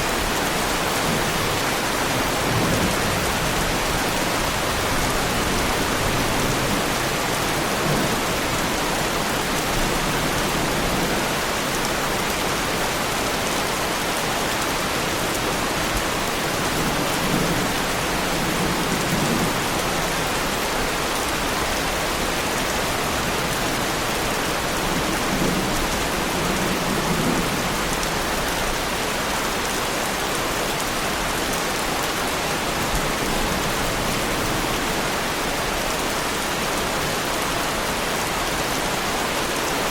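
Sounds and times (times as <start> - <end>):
heavy rain on car body: 13.6 - 39.9.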